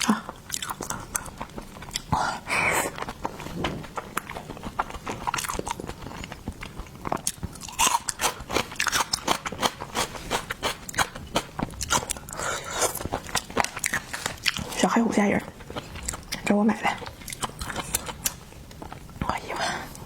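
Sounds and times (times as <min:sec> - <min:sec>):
person chewing crunchy food: 0:00.0 - 0:20.0.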